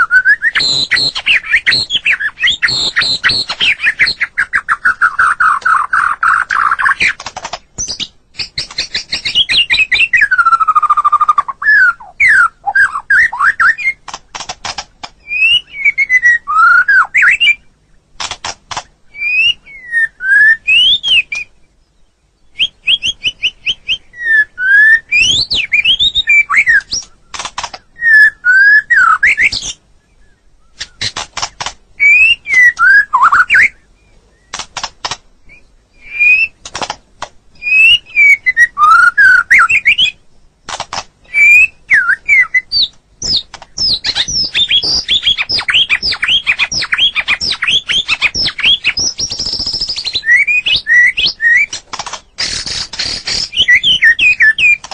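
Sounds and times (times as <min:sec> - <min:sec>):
songbird whistling phrases: 0:00.0 - 0:07.2, 0:07.8 - 0:14.0, 0:15.2 - 0:17.8, 0:19.1 - 0:31.1, 0:32.0 - 0:34.6, 0:35.5 - 0:36.6, 0:37.6 - 0:40.2, 0:41.2 - 0:54.9
bird sharp clicking notes: 0:00.3 - 0:11.4, 0:13.4 - 0:15.2, 0:18.2 - 0:19.0, 0:25.1 - 0:28.0, 0:30.7 - 0:33.7, 0:34.5 - 0:35.3, 0:36.1 - 0:41.4, 0:42.0 - 0:54.9.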